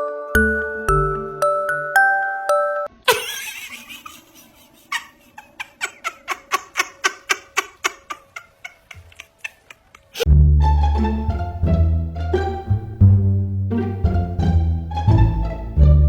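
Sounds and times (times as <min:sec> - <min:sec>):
person laughing: 0:03.0 - 0:10.3.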